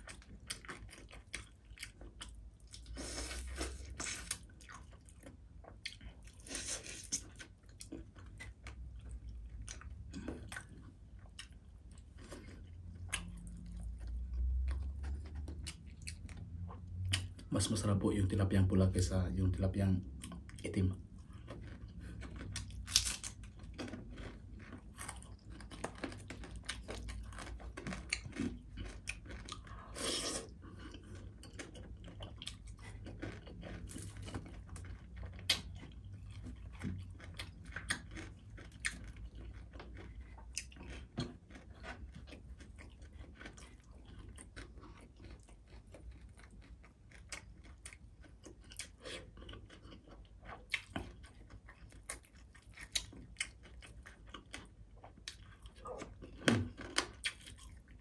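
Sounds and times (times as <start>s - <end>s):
crunchy chewing: 0.0s - 17.8s, 20.2s - 58.0s.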